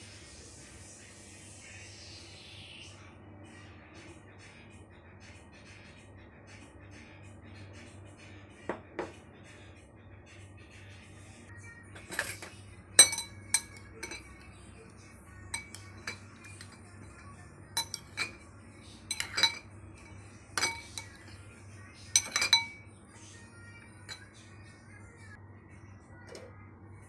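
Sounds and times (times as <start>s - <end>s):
utensils and dishes clinking: 11.9s - 22.9s, 23.5s - 24.6s.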